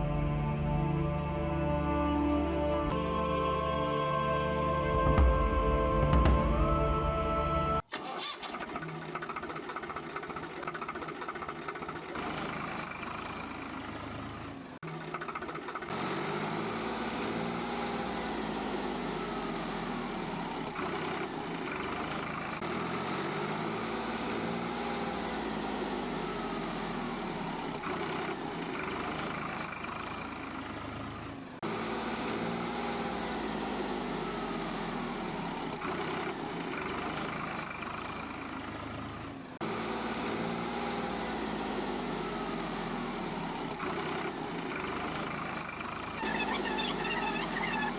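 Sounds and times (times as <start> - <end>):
motor droning with rising pitch: 0.0 - 7.8.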